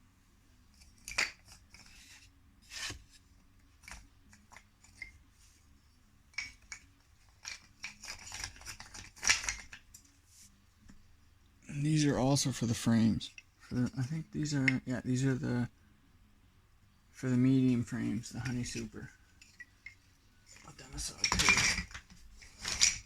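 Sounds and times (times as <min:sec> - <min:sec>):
wooden frame parts being handled: 0:00.7 - 0:05.7, 0:06.3 - 0:11.1, 0:18.0 - 0:23.0.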